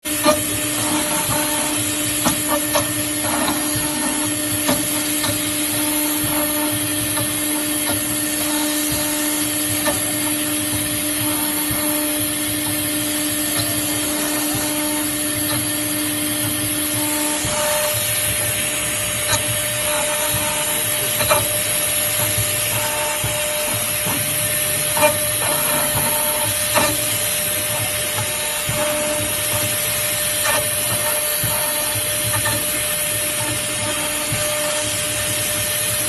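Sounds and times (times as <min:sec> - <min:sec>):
motors humming in spurts: 0:00.1 - 0:36.0.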